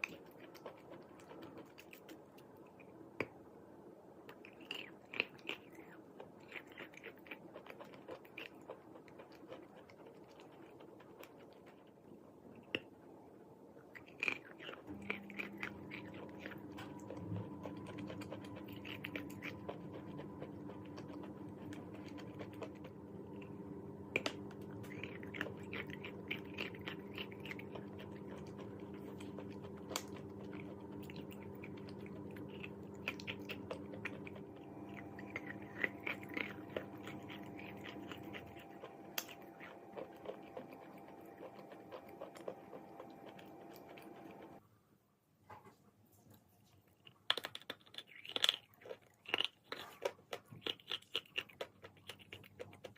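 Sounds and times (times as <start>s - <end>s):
chalk crunching while chewed: 0.0s - 3.4s, 4.2s - 12.9s, 13.8s - 44.6s, 46.8s - 52.9s
steady multi-pitch hum: 14.9s - 44.6s.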